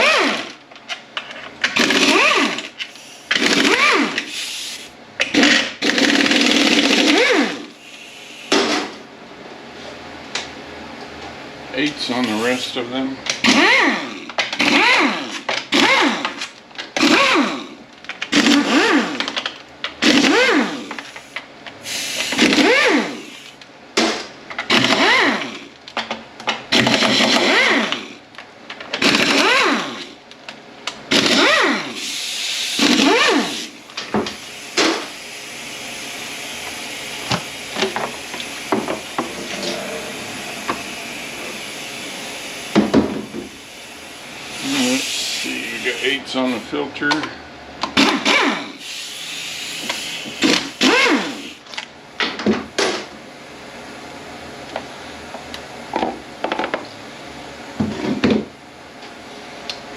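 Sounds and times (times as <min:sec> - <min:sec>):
power driver whining: 0:00.0 - 0:00.6, 0:01.7 - 0:04.6, 0:31.1 - 0:51.9.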